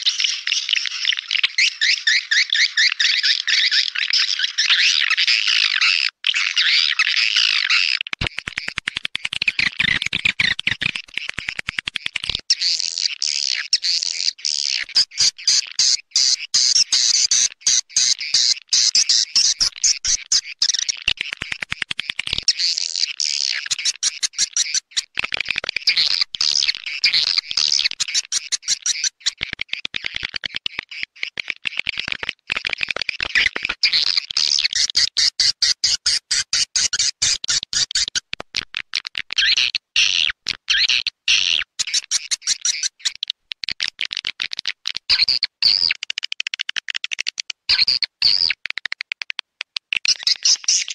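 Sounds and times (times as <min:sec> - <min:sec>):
swiftlets chirping and twittering: 0:00.0 - 0:31.3, 0:50.1 - 0:50.9.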